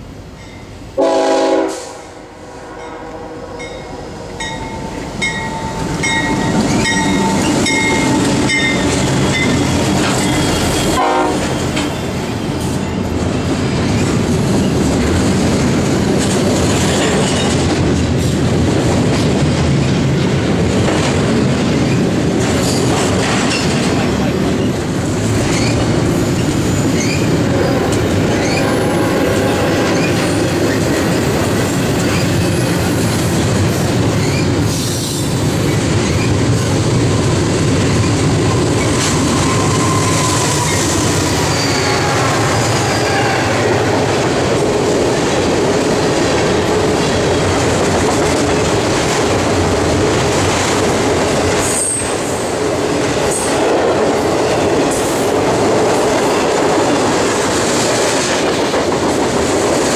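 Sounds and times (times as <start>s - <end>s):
locomotive horn blast: 1.0s - 4.4s, 10.7s - 11.6s, 27.5s - 30.1s.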